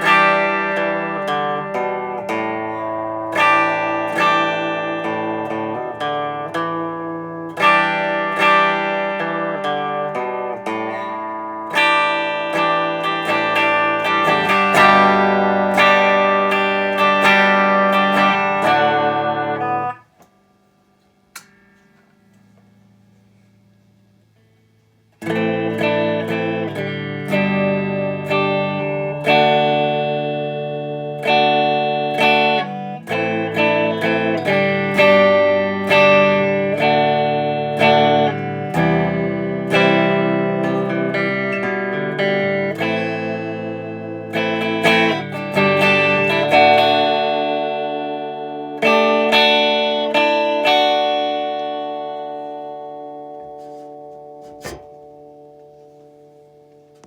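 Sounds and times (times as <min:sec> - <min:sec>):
electric guitar chords: 0:00.0 - 0:57.0.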